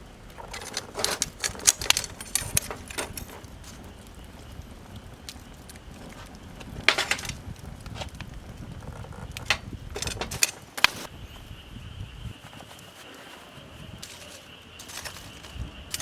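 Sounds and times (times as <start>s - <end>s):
low fire rumble: 0.0s - 16.0s
sharp cracks and clicks: 0.2s - 11.1s.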